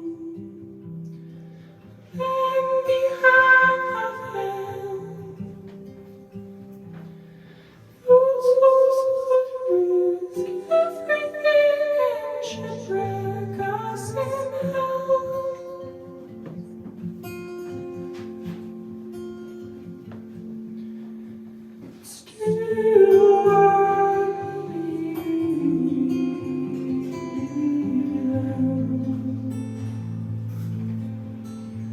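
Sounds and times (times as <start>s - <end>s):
live band with guitar: 0.0s - 8.6s, 9.6s - 31.9s.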